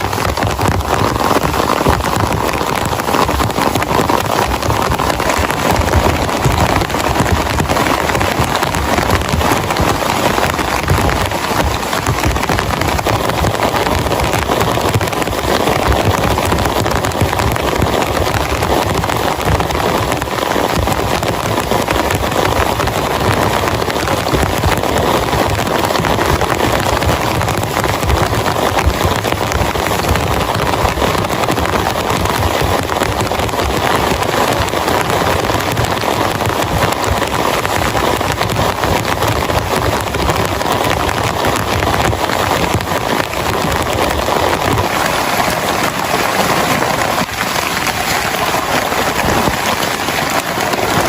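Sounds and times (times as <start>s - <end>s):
heavy rain: 0.0s - 51.0s.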